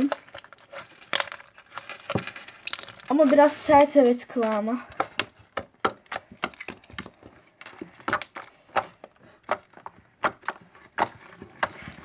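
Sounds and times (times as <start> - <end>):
foam slime crackling pops: 2.1 - 3.6.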